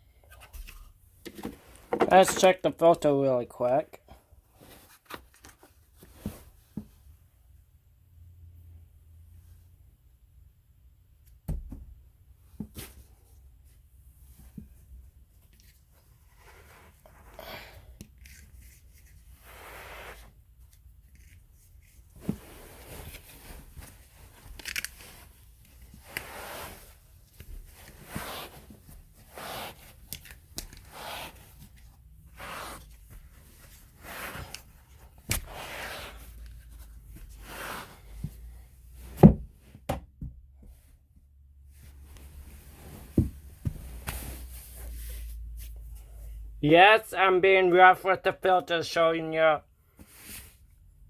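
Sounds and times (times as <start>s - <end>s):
scraping rustling strokes on filter: 18.2s - 20.5s, 21.1s - 30.2s, 30.8s - 39.1s.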